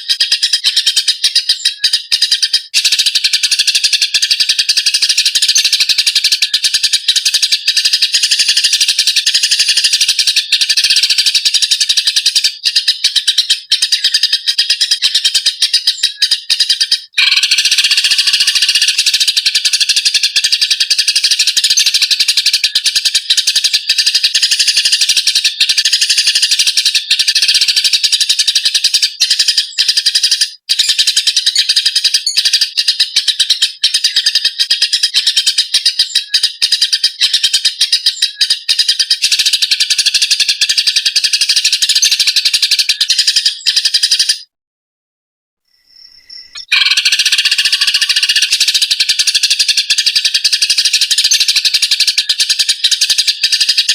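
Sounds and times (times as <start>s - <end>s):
sparrows chattering harshly: 0.0s - 44.5s, 45.7s - 53.9s.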